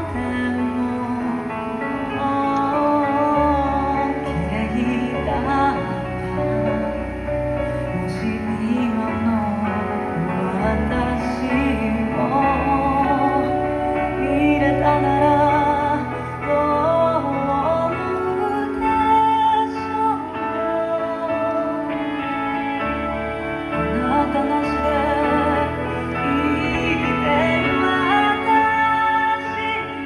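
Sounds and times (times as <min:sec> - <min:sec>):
person singing with vibrato: 0:00.0 - 0:30.0.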